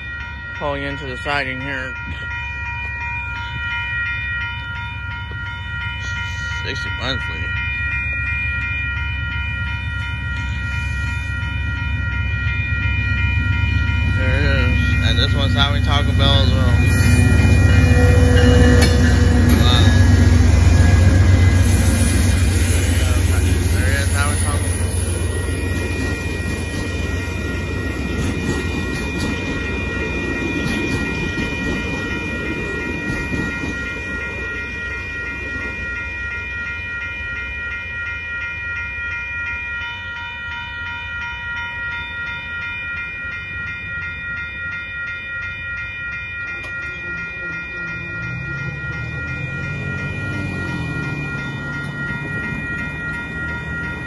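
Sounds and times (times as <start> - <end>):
crossing bell ringing: 0.0 - 54.0
passenger train passing: 0.0 - 54.0
road vehicle engine: 47.4 - 54.0.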